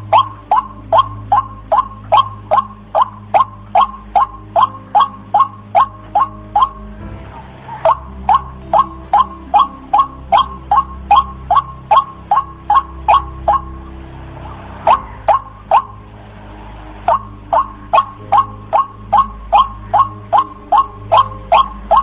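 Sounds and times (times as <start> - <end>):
waterhen calling: 0.0 - 6.9, 7.6 - 13.8, 14.5 - 16.0, 17.1 - 22.0.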